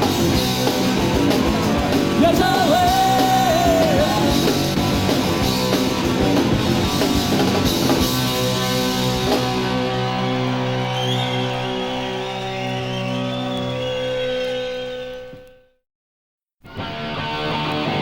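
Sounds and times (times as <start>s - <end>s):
drums and cymbals: 0.0s - 9.9s
punk rock band playing live: 0.0s - 11.8s.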